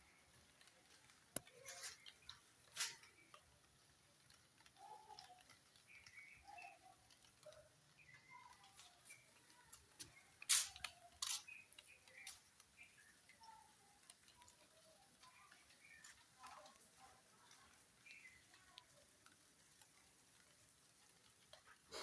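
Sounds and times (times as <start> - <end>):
faint bird chirps: 4.7 - 19.1.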